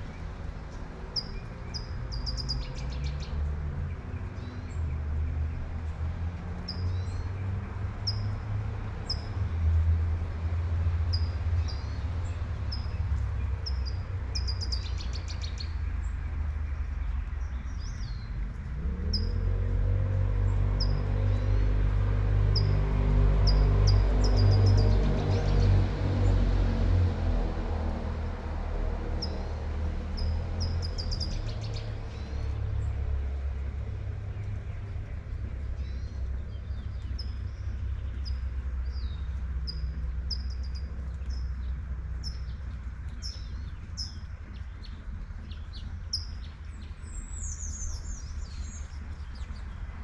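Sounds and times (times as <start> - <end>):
songbirds chirping: 0.0 - 50.0
street traffic rumble: 0.0 - 50.0
light rain: 7.3 - 24.9, 25.6 - 50.0
passing vehicle engine: 18.0 - 45.9.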